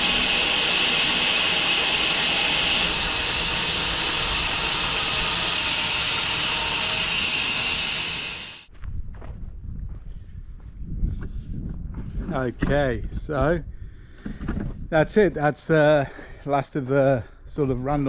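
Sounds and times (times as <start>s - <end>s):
bandsaw cutting a log: 0.0s - 8.7s.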